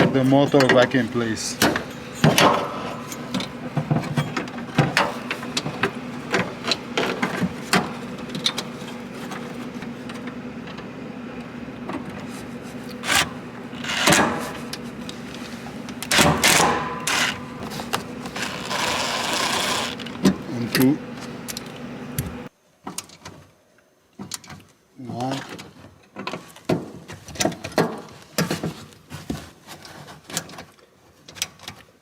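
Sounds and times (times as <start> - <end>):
clicks knocks and scraping: 1.6 - 10.3, 12.0 - 22.4.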